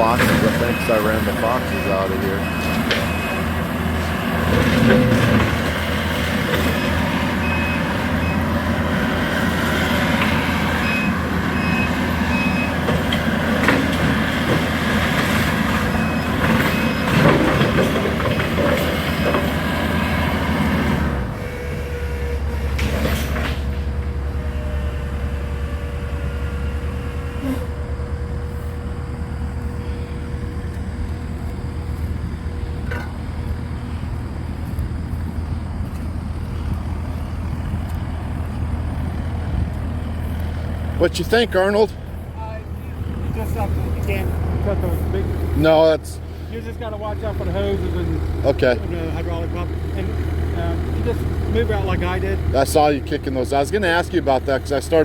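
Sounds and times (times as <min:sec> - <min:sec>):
backup alarm beeping: 0:00.0 - 0:04.3, 0:06.5 - 0:08.7, 0:10.3 - 0:13.0, 0:15.8 - 0:18.2
skid steer engine running: 0:00.0 - 0:55.0
clattering and knocks: 0:12.8 - 0:19.6.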